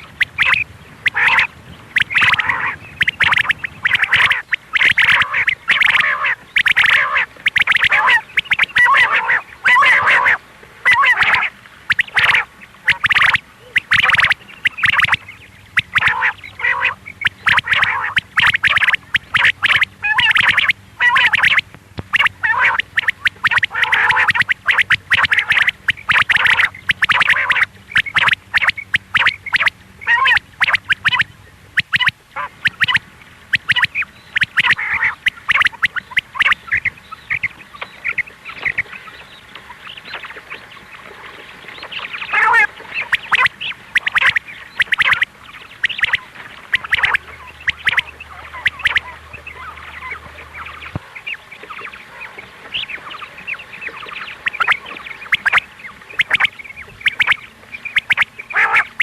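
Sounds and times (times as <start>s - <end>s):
quail calling rapidly: 0.0s - 40.5s, 41.6s - 59.0s.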